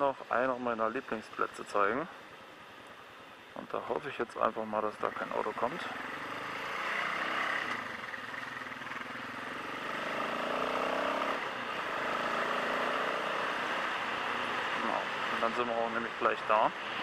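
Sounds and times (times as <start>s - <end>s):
motorcycle engine accelerating: 5.6s - 15.2s.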